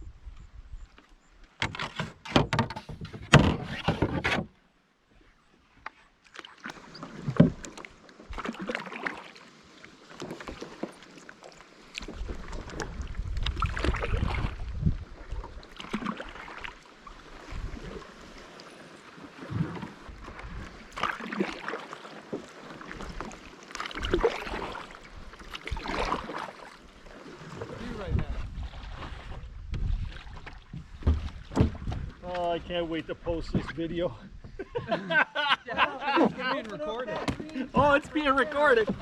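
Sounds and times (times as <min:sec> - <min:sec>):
wind rumbling on microphone: 0:00.0 - 0:01.0, 0:12.1 - 0:15.8, 0:17.2 - 0:18.1, 0:19.5 - 0:21.0, 0:27.6 - 0:34.6
water sloshing against hull: 0:00.1 - 0:39.0
paddle strokes splashing: 0:05.1 - 0:34.6, 0:35.7 - 0:39.0.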